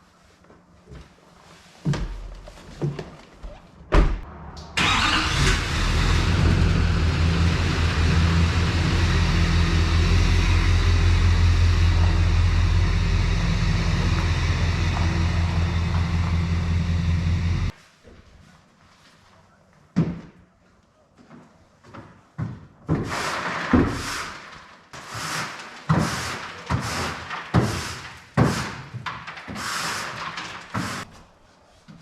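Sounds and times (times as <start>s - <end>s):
pickup engine starting and idling: 4.7s - 17.7s.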